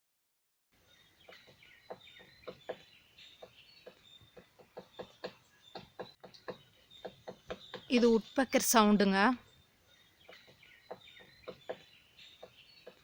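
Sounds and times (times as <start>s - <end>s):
small birds chirping: 0.8s - 13.0s
woodpecker tapping on wood: 1.2s - 8.3s, 10.2s - 13.0s.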